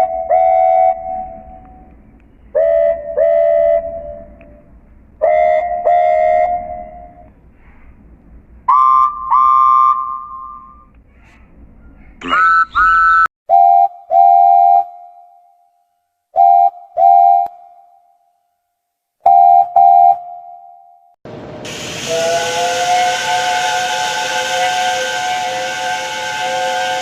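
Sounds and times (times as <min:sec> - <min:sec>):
train whistle blasts: 0:00.0 - 0:01.9, 0:02.5 - 0:04.6, 0:05.2 - 0:07.3, 0:08.7 - 0:10.9, 0:13.5 - 0:15.4, 0:16.4 - 0:17.6, 0:21.7 - 0:27.0.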